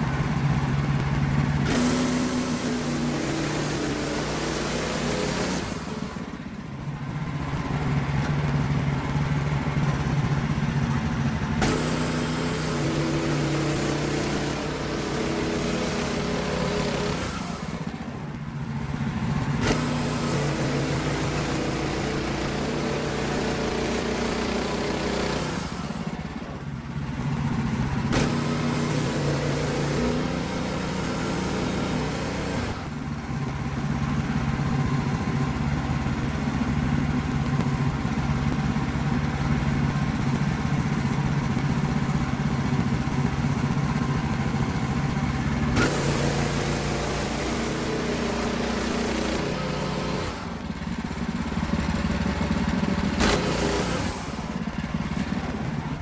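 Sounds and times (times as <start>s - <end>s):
sawmill engine running: 0.0s - 56.0s
saw blade cutting log: 1.6s - 6.2s, 11.6s - 17.9s, 19.6s - 26.0s, 28.1s - 32.8s, 45.8s - 50.5s, 53.2s - 54.6s.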